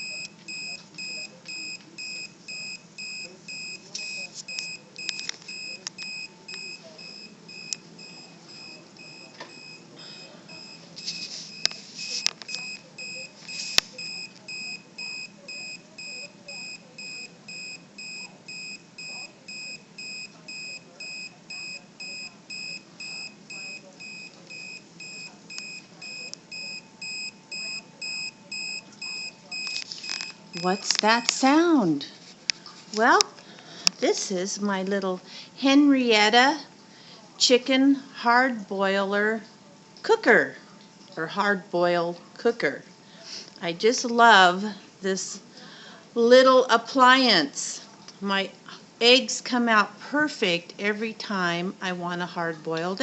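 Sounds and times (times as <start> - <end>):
electronic chirp alarm beeping: 0.0 - 31.4.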